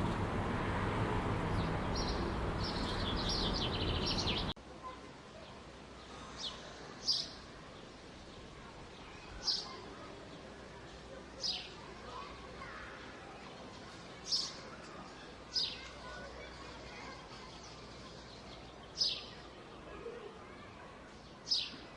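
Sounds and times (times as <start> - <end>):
city noise hum: 0.0 - 21.9
small birds twittering: 1.4 - 4.6, 5.4 - 21.9
falling bird chirps: 1.5 - 4.6.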